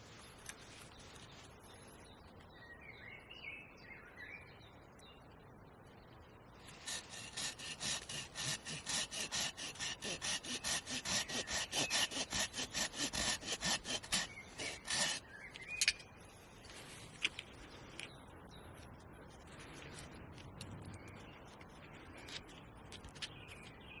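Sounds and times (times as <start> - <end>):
hand saw cutting wood: 6.7 - 15.2.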